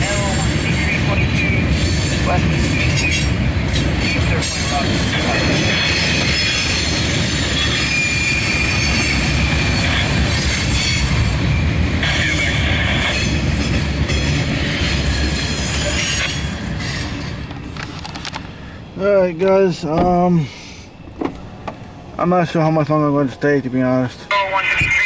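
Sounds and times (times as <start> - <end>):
train wheels rumbling on rail: 0.0 - 25.0
high wheel squeal: 0.4 - 13.4, 14.2 - 17.4.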